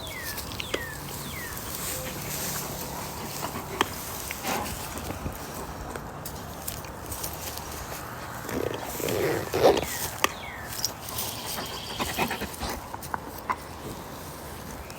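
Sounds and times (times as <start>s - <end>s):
dog growling: 8.4s - 10.0s.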